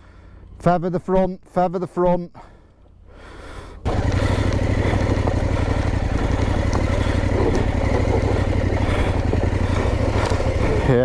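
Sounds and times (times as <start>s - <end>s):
motorcycle engine running: 2.6s - 11.0s.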